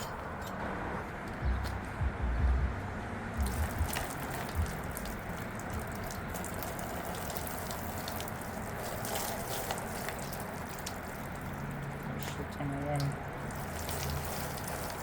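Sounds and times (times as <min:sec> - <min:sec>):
dull low thumps: 0:01.4 - 0:05.0
water trickling and dripping: 0:03.4 - 0:15.0.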